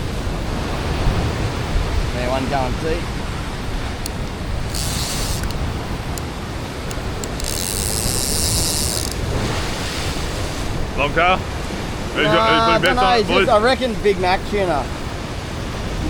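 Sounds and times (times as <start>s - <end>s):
surf and wind: 0.0s - 16.0s
fishing reel drag buzzing: 3.1s - 9.6s.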